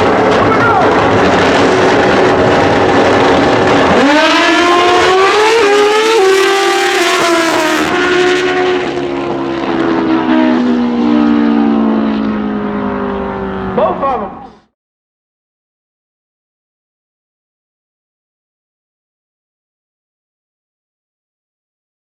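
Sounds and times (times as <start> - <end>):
racing motorcycles accelerating: 0.0 - 14.7.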